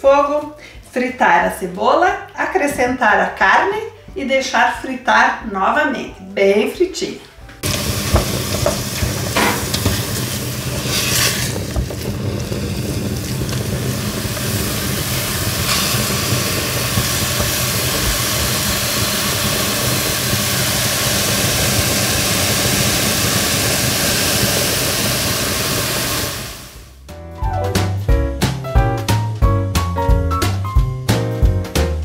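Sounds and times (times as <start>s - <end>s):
onion sizzling in hot oil: 7.6s - 26.9s.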